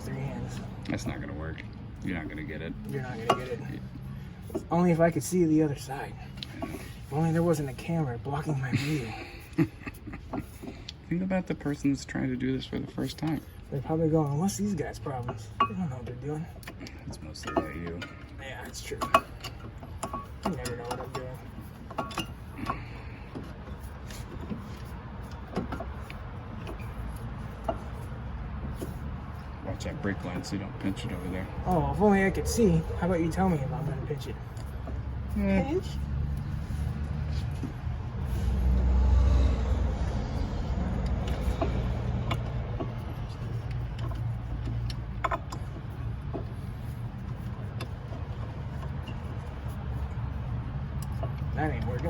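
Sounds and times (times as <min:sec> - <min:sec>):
brake parts knocking and clinking: 0:00.9 - 0:09.1, 0:13.1 - 0:38.9, 0:40.3 - 0:52.0
metal clicks and knocks: 0:40.9 - 0:52.0.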